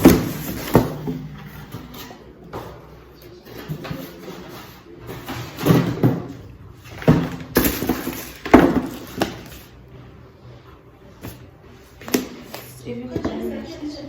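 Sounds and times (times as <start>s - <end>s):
package rustling and scraping: 6.8s - 9.8s.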